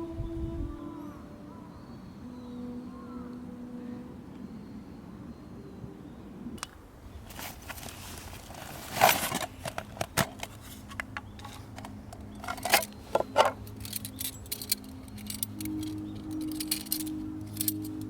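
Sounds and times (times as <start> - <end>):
background music: 0.0 - 7.0, 8.4 - 18.0
small objects clicking and knocking: 8.9 - 18.0.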